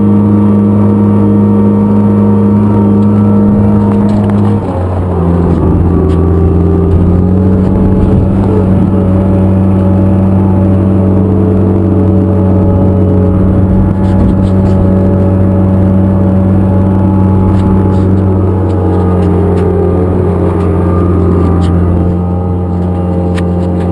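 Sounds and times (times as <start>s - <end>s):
engine droning steadily: 0.0s - 23.9s.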